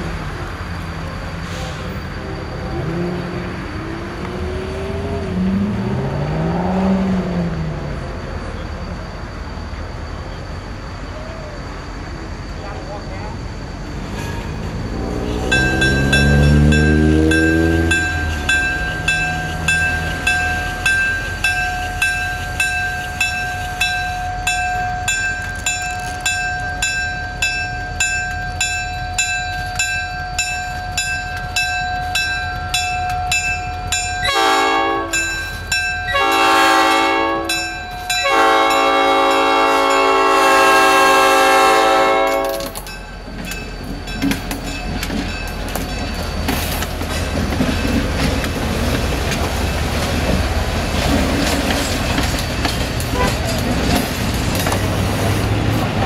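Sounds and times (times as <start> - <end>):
diesel engine rumble: 0.0 - 36.6
wheels clicking over rail joints: 15.4 - 36.6, 42.2 - 56.0
locomotive bell ringing: 15.4 - 54.7
train horn blasts: 34.2 - 35.4, 36.1 - 42.8, 53.1 - 53.6.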